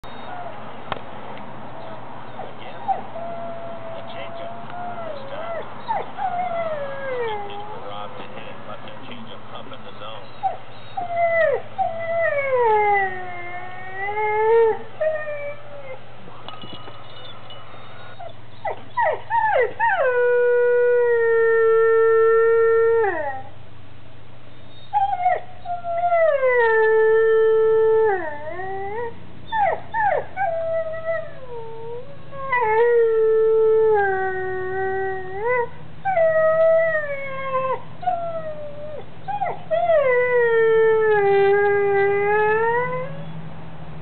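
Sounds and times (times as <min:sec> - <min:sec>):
dog yelping: 0:00.1 - 0:00.6, 0:02.7 - 0:08.5, 0:17.2 - 0:20.3, 0:28.2 - 0:32.9, 0:35.6 - 0:43.4
dog howling: 0:00.2 - 0:00.6, 0:01.8 - 0:08.6, 0:10.4 - 0:16.0, 0:18.0 - 0:23.5, 0:24.7 - 0:43.4.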